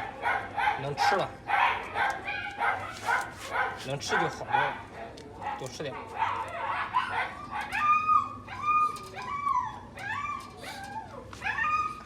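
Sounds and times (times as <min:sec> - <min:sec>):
dog whining: 0:07.0 - 0:12.0.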